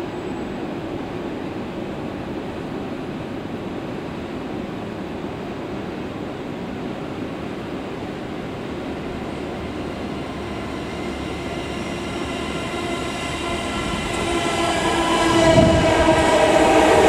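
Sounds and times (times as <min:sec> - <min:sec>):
whine of steady tones: 0:00.0 - 0:17.0
electric train running noise: 0:08.0 - 0:17.0.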